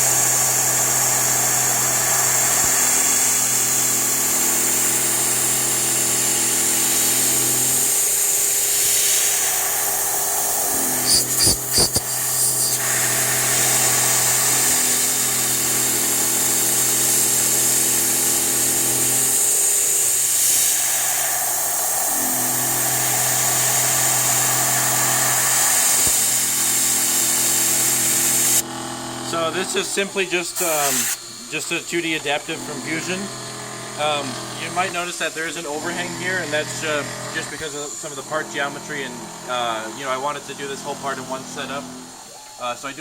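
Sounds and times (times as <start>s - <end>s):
hiss of cutting and air blast: 0.0s - 18.2s, 19.3s - 28.6s, 30.0s - 32.3s
rough cutting noise: 10.6s - 15.0s, 29.3s - 42.2s
mill spindle hum: 21.3s - 42.6s.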